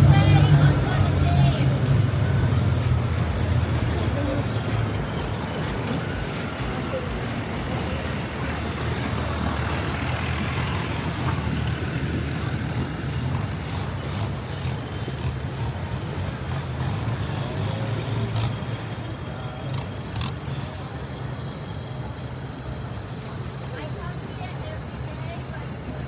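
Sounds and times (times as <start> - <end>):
rushing noise: 0.0 - 17.1
boat engine droning: 0.0 - 26.0.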